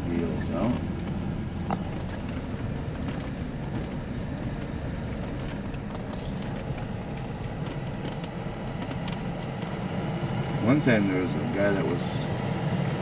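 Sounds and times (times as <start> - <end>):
car engine and road rumble: 0.0 - 13.0
small clicks and rattles: 0.7 - 9.8.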